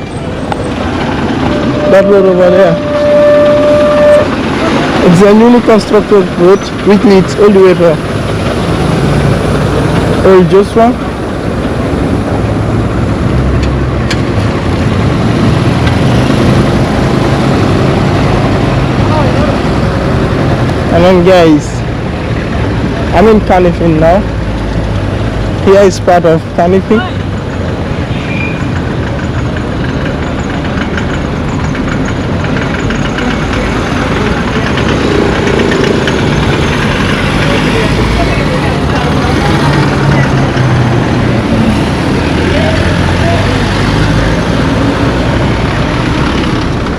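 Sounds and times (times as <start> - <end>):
road noise: 0.0 - 46.9
vehicle engine running: 26.6 - 46.9.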